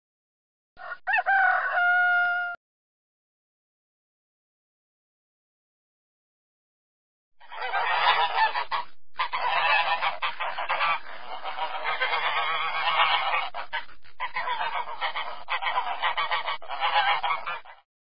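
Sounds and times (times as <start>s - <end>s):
goose honking: 7.4s - 17.8s.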